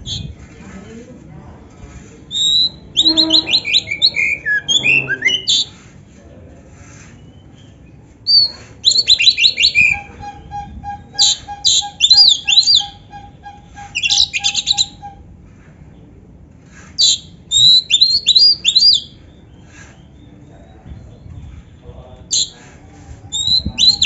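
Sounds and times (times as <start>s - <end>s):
bird singing: 2.3s - 5.8s, 7.4s - 15.2s.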